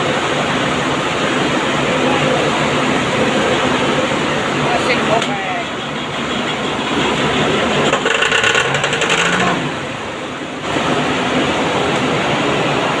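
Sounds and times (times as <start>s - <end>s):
machine engine clattering: 2.2s - 10.2s.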